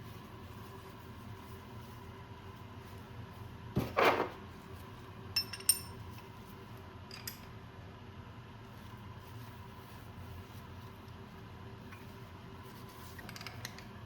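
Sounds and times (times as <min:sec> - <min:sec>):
light ringing metal clinks: 0:05.4 - 0:06.0.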